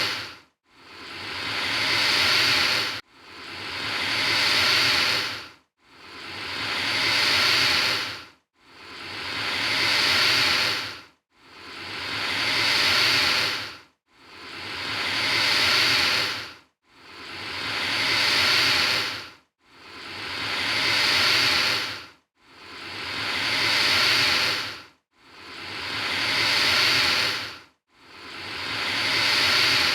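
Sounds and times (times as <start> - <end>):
alligator hissing: 0.0 - 0.3, 0.9 - 3.0, 3.6 - 5.4, 6.2 - 8.2, 8.8 - 10.9, 11.6 - 13.7, 14.4 - 16.5, 17.1 - 19.2, 19.9 - 22.0, 22.7 - 24.8, 25.4 - 27.5, 28.2 - 29.9.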